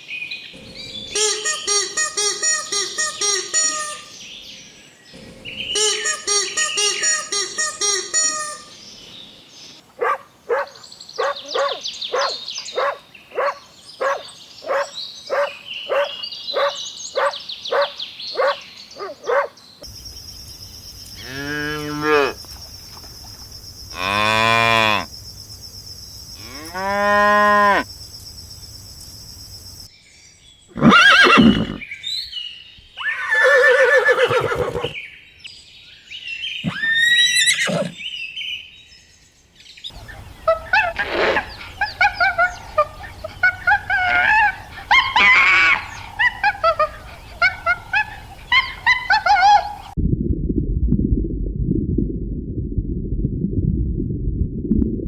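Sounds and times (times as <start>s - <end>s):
birds chirping: 0.0s - 50.0s
mixed animal calls: 0.6s - 4.2s, 5.1s - 8.8s, 10.0s - 19.6s, 23.9s - 25.1s, 36.6s - 38.0s, 39.9s - 50.0s
cattle mooing: 21.2s - 22.4s, 24.0s - 25.1s, 26.4s - 27.8s
short repeated animal calls: 39.9s - 50.0s.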